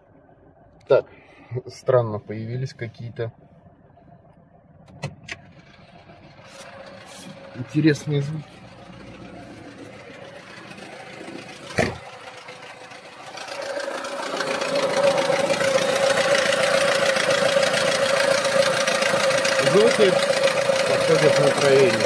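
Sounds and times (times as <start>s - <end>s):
engine whine: 3.0s - 22.0s
car engine knocking clatter: 5.3s - 22.0s
sharp thump: 11.7s - 12.0s.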